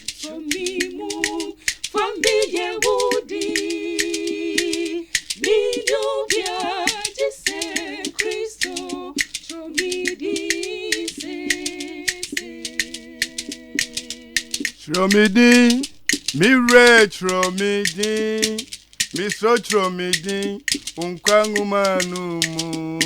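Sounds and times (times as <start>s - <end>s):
percussive clicks: 0.0s - 23.0s
voices singing in harmony: 0.0s - 23.0s.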